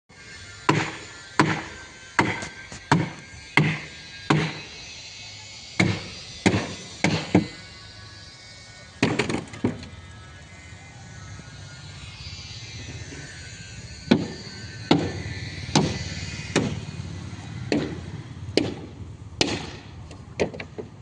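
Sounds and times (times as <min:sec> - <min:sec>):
hammer blows ringing: 0:00.6 - 0:04.8, 0:05.8 - 0:07.6, 0:14.0 - 0:17.0, 0:17.6 - 0:19.9.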